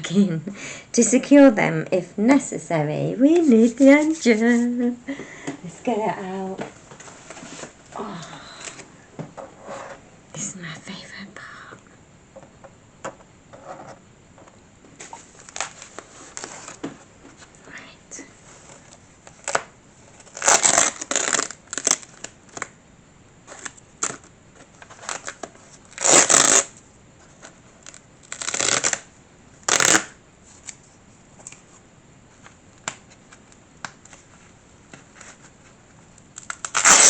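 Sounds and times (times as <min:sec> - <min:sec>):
wrapping material crinkling: 0:15.0 - 0:16.8, 0:18.5 - 0:22.8, 0:23.4 - 0:30.8, 0:32.3 - 0:37.0.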